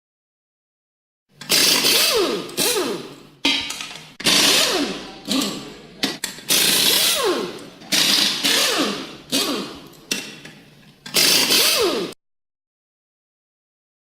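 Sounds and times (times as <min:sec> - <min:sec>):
power tool whining bursts: 0:11.1 - 0:12.2.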